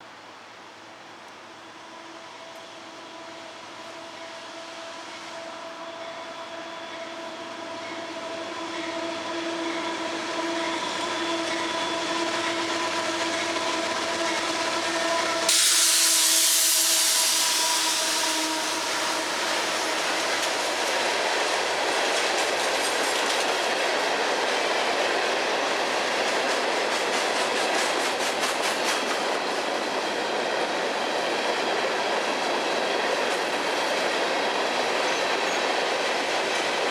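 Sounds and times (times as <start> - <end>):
diesel locomotive drone: 0.1 - 36.9
loud hiss: 14.9 - 21.9.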